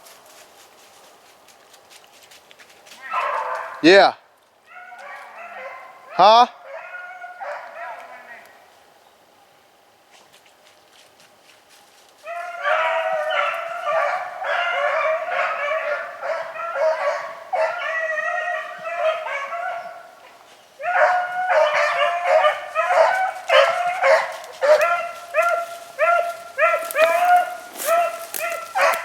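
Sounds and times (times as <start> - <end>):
beagles baying: 3.0 - 3.9, 4.6 - 8.7, 12.2 - 29.0.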